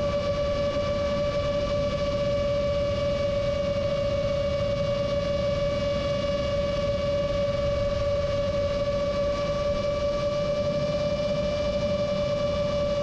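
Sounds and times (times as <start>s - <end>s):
drone propellers droning: 0.0s - 13.0s.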